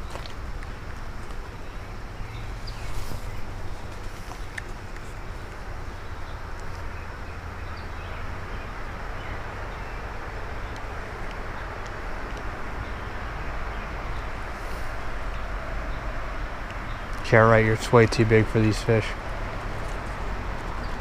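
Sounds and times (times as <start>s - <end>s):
steady hiss: 8.8s - 19.8s.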